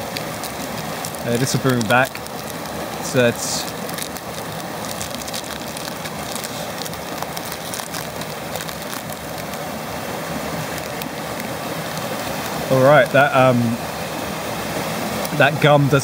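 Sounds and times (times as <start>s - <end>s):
foil wrapper crinkling: 0.0s - 9.8s, 10.4s - 13.2s
waterfall rushing: 0.0s - 16.0s.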